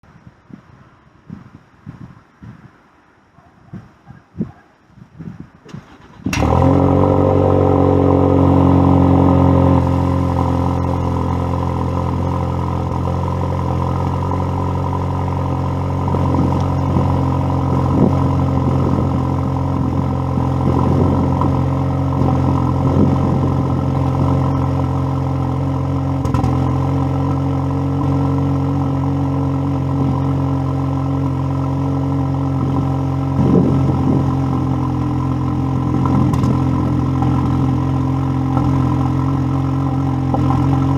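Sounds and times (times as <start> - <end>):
car engine cold start idling: 5.7 - 8.7.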